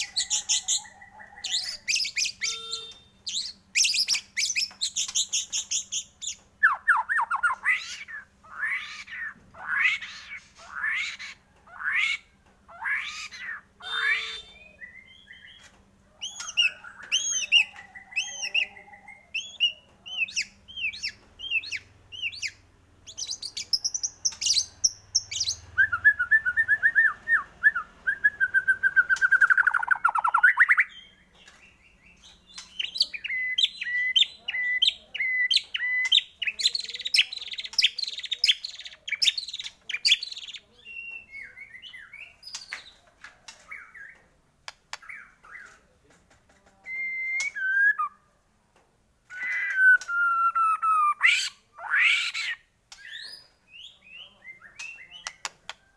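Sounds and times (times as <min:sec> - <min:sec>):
songbird singing varied song: 0:13.2 - 0:43.0, 0:49.3 - 0:55.9.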